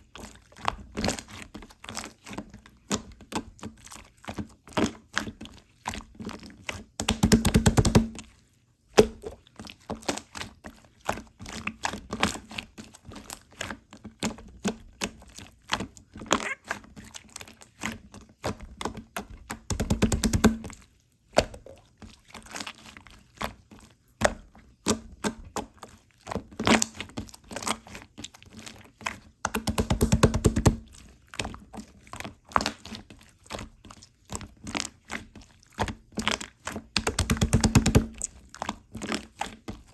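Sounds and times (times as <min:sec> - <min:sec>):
slime squished by hand: 0:24.2 - 0:39.9.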